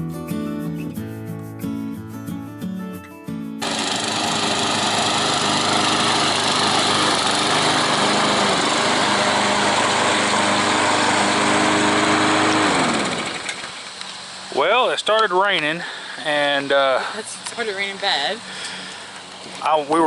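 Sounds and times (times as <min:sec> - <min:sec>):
acoustic guitar music: 0:00.0 - 0:08.0
small gasoline engine running: 0:03.6 - 0:14.7.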